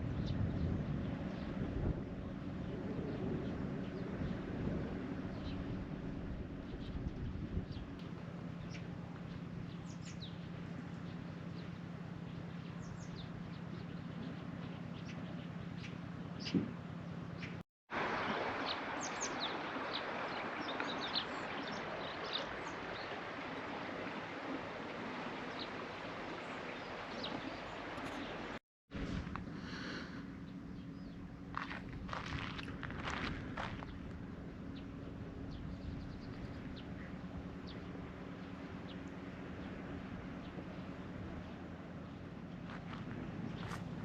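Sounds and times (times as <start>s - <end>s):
low steady hum: 0.0s - 44.0s
outdoor background hiss: 1.0s - 44.0s
small birds chirping: 6.6s - 17.6s, 25.5s - 28.6s, 29.5s - 34.1s, 34.7s - 44.0s.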